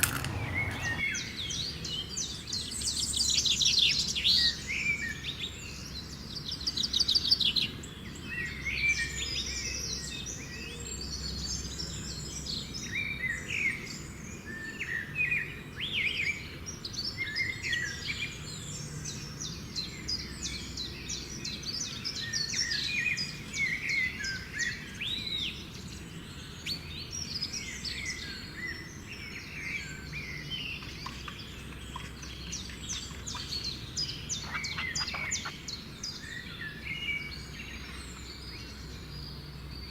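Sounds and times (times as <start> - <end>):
birds chirping and trilling: 0.0 - 7.2, 17.0 - 39.9.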